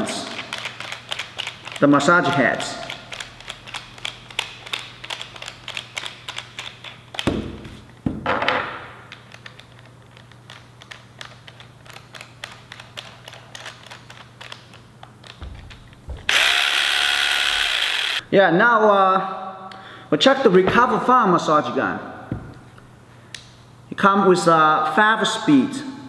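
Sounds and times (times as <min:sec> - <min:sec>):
plastic parts clicking: 0:02.8 - 0:07.2, 0:09.1 - 0:18.2
louder thunks: 0:15.4 - 0:17.7, 0:22.3 - 0:23.0.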